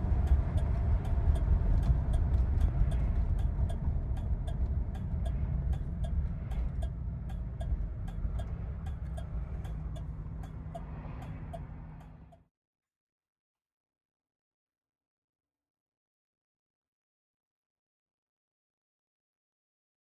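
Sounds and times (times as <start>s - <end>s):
light regular ticking: 0.2s - 12.3s.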